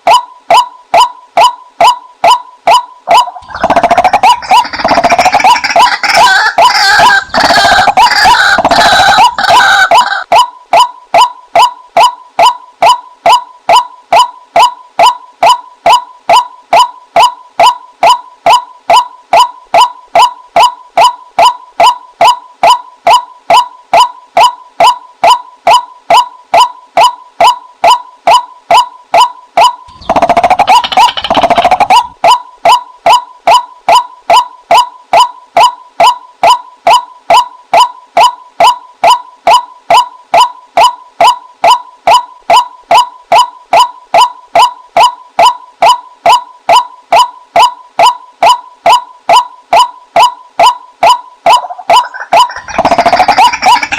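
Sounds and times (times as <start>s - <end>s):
waterhen call: 2.7s - 10.4s, 28.7s - 35.3s, 49.8s - 53.9s.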